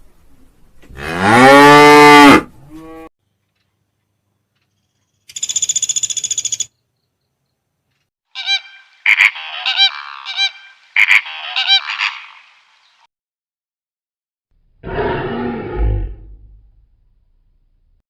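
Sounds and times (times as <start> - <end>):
geese honking: 8.4 - 12.5.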